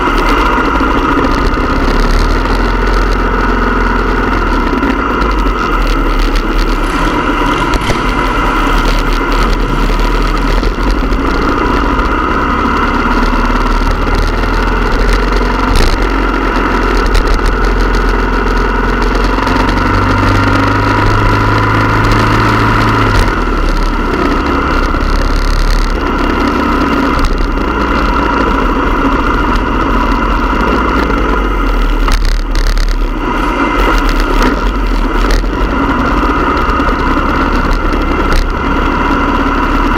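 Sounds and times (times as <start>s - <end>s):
constant rushing noise: 0.0s - 39.9s
motorcycle engines running: 0.0s - 39.9s.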